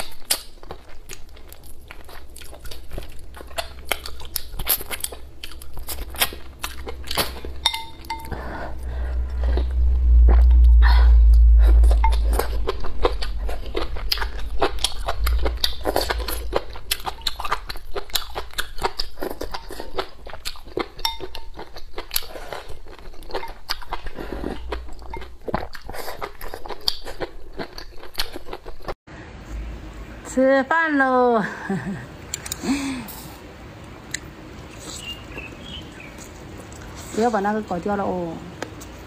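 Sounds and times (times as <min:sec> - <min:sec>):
person chewing soup: 0:00.0 - 0:29.0, 0:32.2 - 0:37.1
low rumble: 0:01.1 - 0:21.3, 0:22.2 - 0:26.8.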